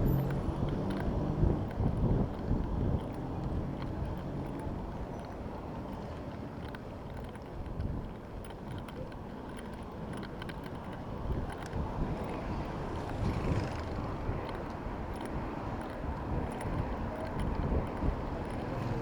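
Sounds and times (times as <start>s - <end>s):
wind buffeting microphone: 0.0s - 5.1s, 11.0s - 19.0s
vehicle passing close: 12.2s - 14.6s.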